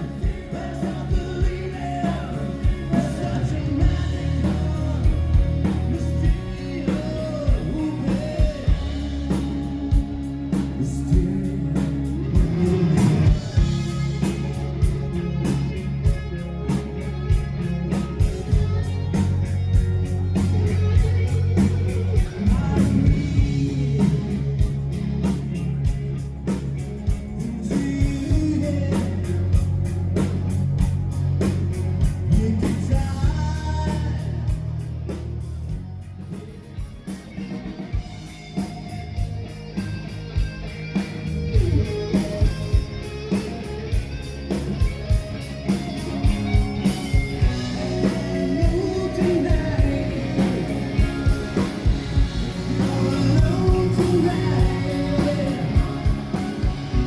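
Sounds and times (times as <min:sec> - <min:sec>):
live rock band playing: 0:00.0 - 0:57.0
person singing: 0:47.6 - 0:57.0.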